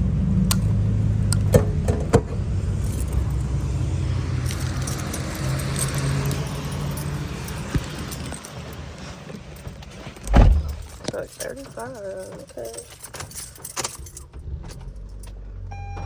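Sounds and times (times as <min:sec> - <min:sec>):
fuel nozzle metallic clicks: 0:00.5 - 0:03.7.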